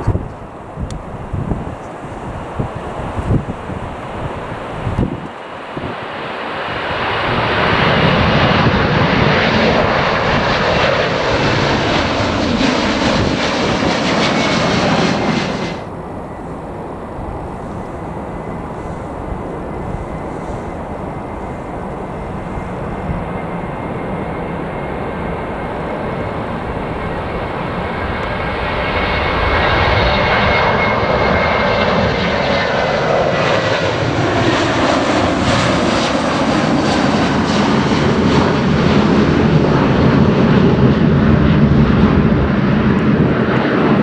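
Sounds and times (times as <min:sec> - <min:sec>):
departing jet noise: 0:00.0 - 0:44.0
jet engines at takeoff power: 0:00.0 - 0:44.0
faint high whine: 0:14.1 - 0:31.8.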